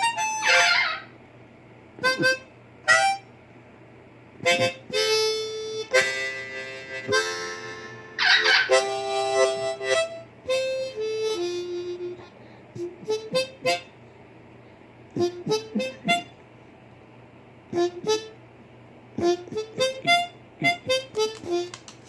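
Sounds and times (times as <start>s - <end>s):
blues harmonica: 0.0s - 1.1s, 2.0s - 3.3s, 4.4s - 14.0s, 15.2s - 16.4s, 17.7s - 18.4s, 19.2s - 21.9s.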